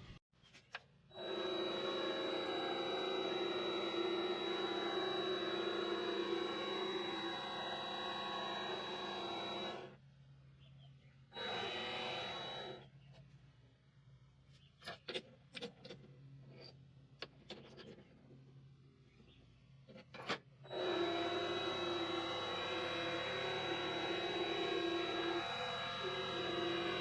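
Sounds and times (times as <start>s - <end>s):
small machine whining: 0.0s - 10.1s, 11.2s - 13.2s, 20.6s - 27.0s.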